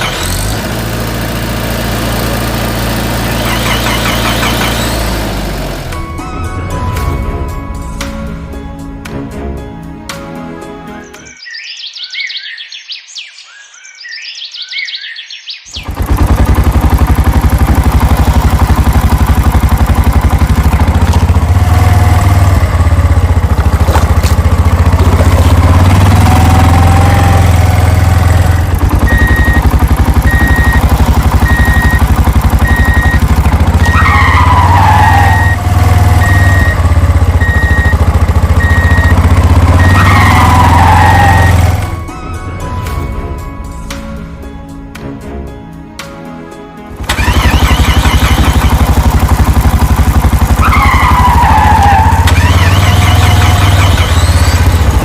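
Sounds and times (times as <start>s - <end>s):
cartoon engine sound effect: 3.0s - 5.2s, 25.0s - 41.8s, 47.1s - 55.0s
birds chirping: 10.8s - 16.0s.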